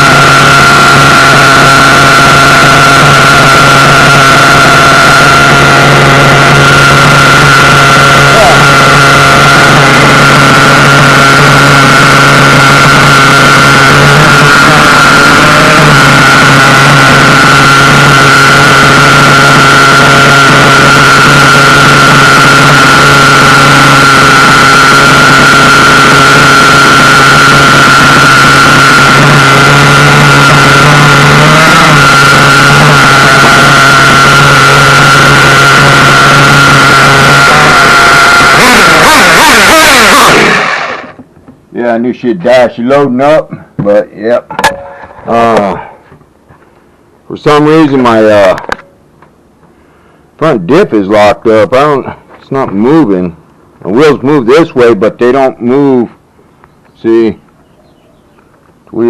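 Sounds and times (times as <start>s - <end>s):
high-pitched tone: 0.0s - 41.1s, 44.5s - 45.8s
small engine idling loudly: 0.0s - 41.2s.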